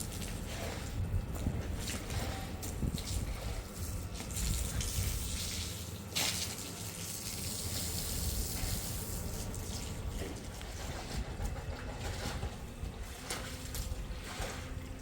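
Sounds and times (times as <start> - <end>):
water running and splashing: 1.8 - 10.5.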